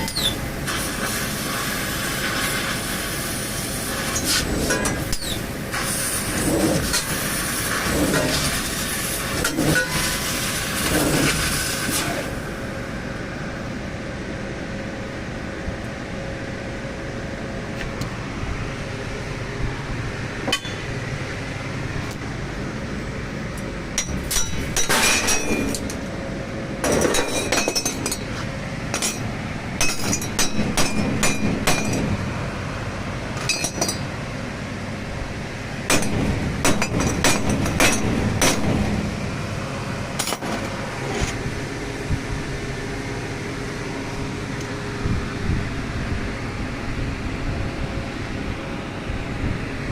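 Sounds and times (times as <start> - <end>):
steady machine hum: 0.0 - 49.9
loud hiss: 0.1 - 4.5, 5.2 - 9.4, 10.0 - 12.6.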